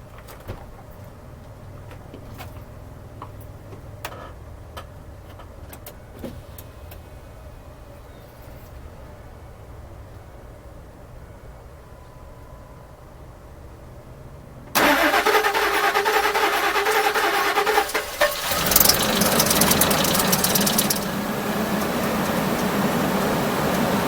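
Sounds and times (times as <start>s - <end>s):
car engine running and idling: 14.8s - 24.0s
starter motor cranking: 14.8s - 24.0s.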